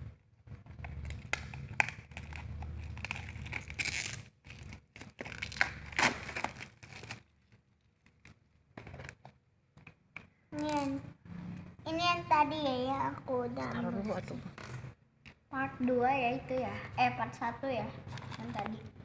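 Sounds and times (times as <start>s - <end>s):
packaging tearing and crinkling: 0.7s - 9.3s.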